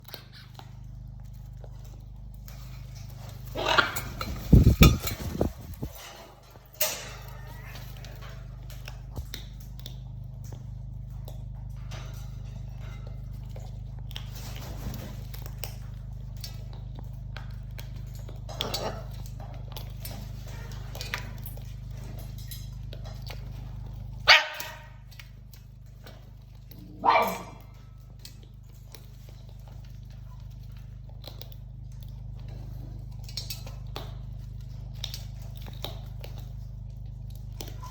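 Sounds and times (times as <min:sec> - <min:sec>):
low hum: 0:00.0 - 0:24.3
dog barking: 0:24.2 - 0:25.0, 0:26.9 - 0:27.7.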